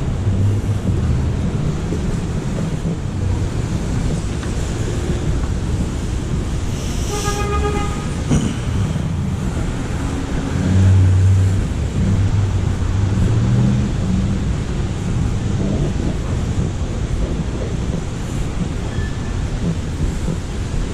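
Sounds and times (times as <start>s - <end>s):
street traffic: 0.0s - 20.9s
car horn toot: 7.0s - 8.2s.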